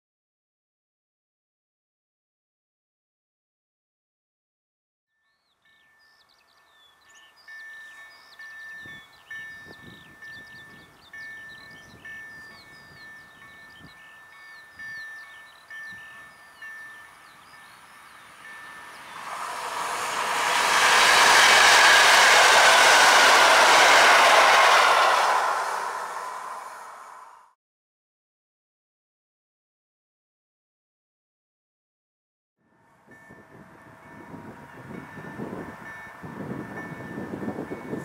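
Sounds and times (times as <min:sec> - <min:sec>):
electric train approaching: 0:05.6 - 0:27.6, 0:32.8 - 0:38.0
evenly pulsing chime: 0:05.7 - 0:27.3, 0:33.0 - 0:38.0
birds chirping: 0:05.8 - 0:25.1.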